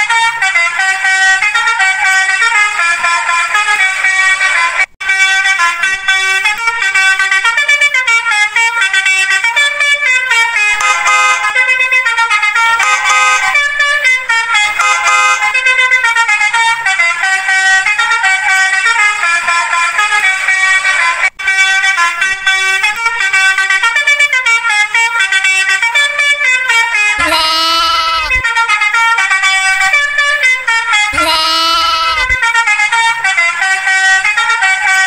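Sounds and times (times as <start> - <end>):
horn playing melody: 10.2 - 35.0.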